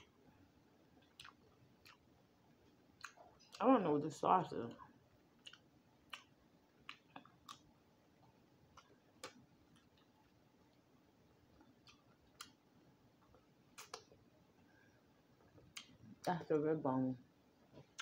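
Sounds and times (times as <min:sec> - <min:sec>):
chewing food: 0:00.8 - 0:03.9, 0:04.7 - 0:14.3, 0:15.4 - 0:16.4, 0:17.6 - 0:18.0.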